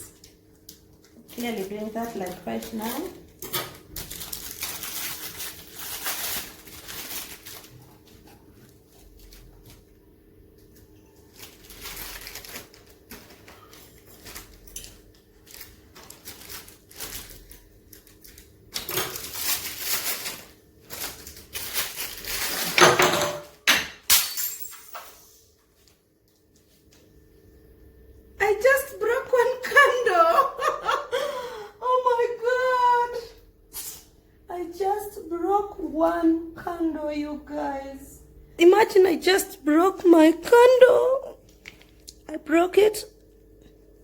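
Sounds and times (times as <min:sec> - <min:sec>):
rustling and scraping: 0:18.9 - 0:22.8.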